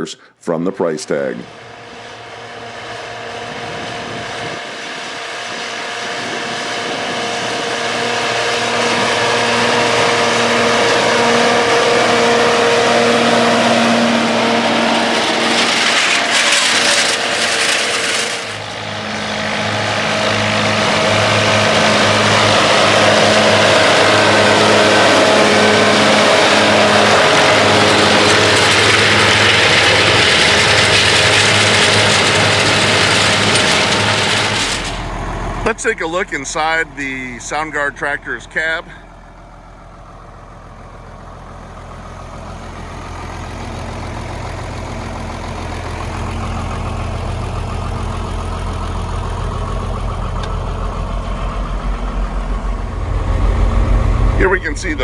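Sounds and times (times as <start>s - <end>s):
tractor diesel engine under load: 0.0s - 55.0s
brief noisy rush: 50.6s - 55.0s.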